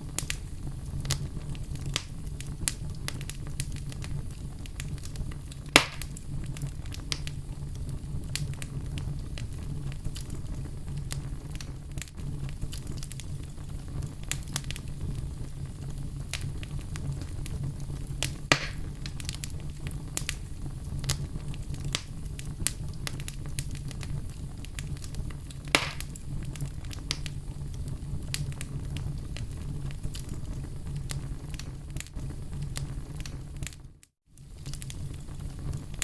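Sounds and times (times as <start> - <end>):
fire crackling in fireplace: 0.0 - 36.0
loud fire pops: 0.0 - 36.0.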